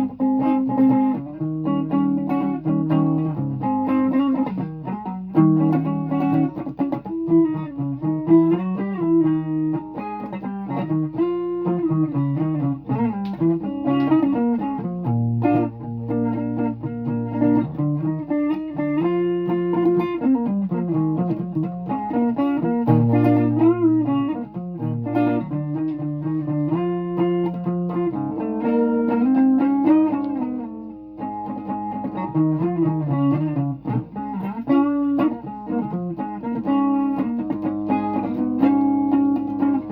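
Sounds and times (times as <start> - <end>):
guitar playing: 0.0 - 39.9.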